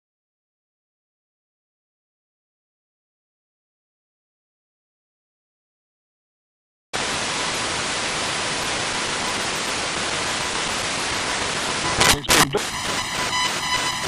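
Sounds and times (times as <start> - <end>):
radio static hiss: 7.0 - 14.0
short radio blips: 10.2 - 14.0.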